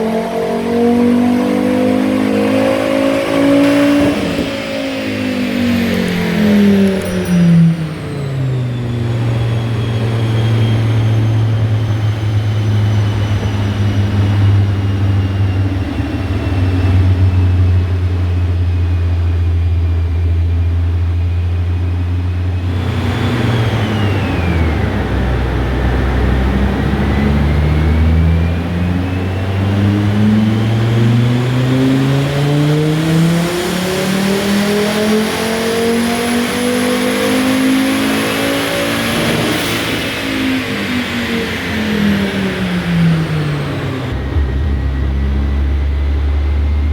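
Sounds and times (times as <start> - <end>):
turbocharged car engine revving: 0.0 - 19.2, 20.9 - 46.9
high whine: 37.4 - 46.9.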